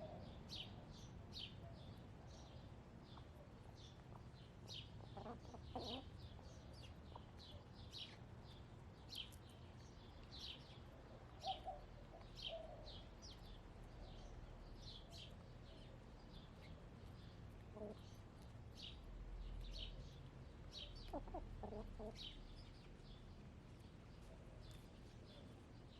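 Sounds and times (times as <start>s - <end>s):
songbirds chirping faintly: 0.0s - 25.9s
hen clucking: 5.0s - 6.1s, 21.0s - 22.3s.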